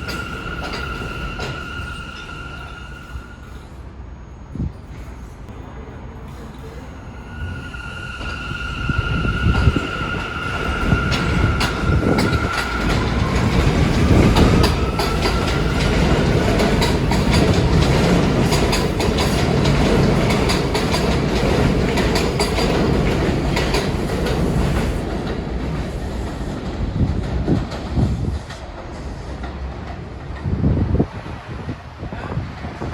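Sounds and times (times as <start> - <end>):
subway train rumbling: 0.0 - 32.9
wheels clacking over rail joints: 9.6 - 30.6.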